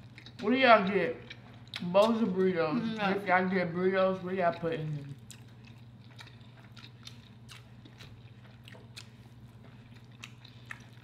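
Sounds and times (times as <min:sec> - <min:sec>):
soft mouth clicks and chewing: 0:00.0 - 0:00.5, 0:01.2 - 0:02.5, 0:04.9 - 0:11.0
steady low hum: 0:00.0 - 0:11.0.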